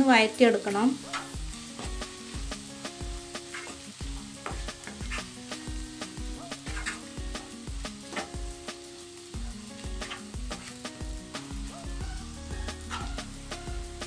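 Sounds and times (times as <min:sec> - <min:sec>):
onions sizzling in oil: 0:00.0 - 0:14.0
spatula scraping pan: 0:00.7 - 0:02.0, 0:03.3 - 0:05.8, 0:06.5 - 0:08.4, 0:09.8 - 0:10.9.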